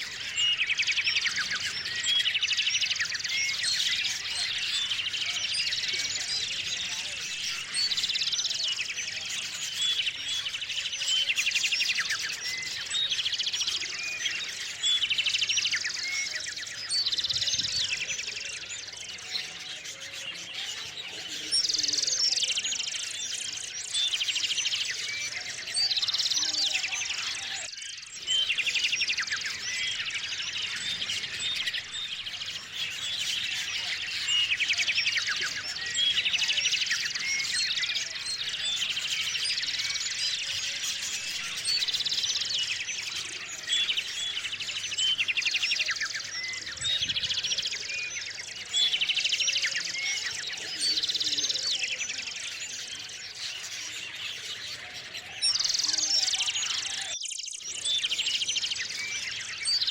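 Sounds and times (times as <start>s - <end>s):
songbirds chirping and trilling: 0.0s - 59.9s.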